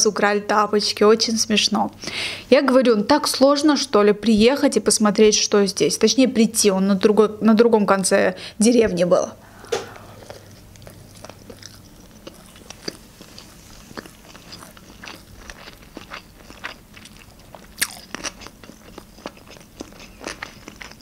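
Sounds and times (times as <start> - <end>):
person chewing: 9.5 - 21.0.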